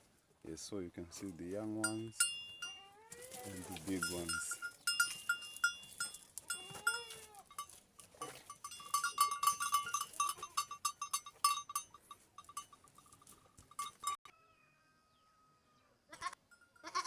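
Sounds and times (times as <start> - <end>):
small bell clinking: 1.8 - 14.2
goat bleating: 5.6 - 7.6, 16.1 - 17.0.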